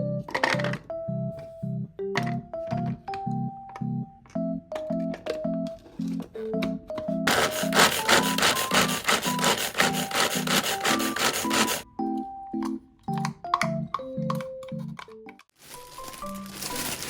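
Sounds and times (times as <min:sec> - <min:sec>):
soft piano music: 0:00.0 - 0:17.0
knife chopping on wooden board: 0:07.3 - 0:11.8.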